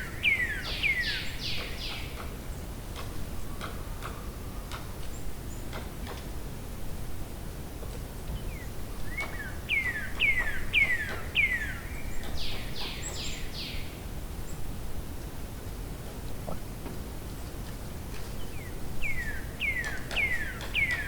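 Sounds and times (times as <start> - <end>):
songbird singing: 0.0 - 5.8, 8.3 - 14.7, 18.2 - 21.0.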